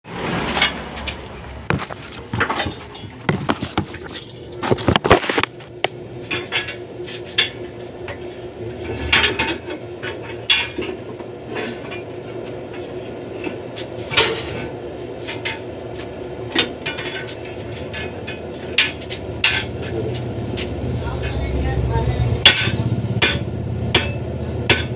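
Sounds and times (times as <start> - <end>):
steady low hum: 0.1 - 24.9
metal clanks and knocks: 0.4 - 21.5, 22.4 - 24.9.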